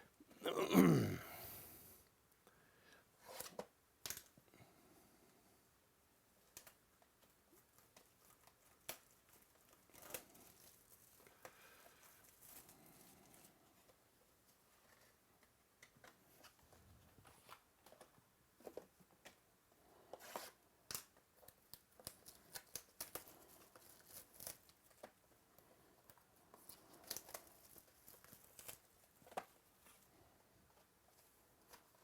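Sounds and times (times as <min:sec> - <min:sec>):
card wrappers tearing and crinkling: 0:20.9 - 0:25.1, 0:26.6 - 0:29.6.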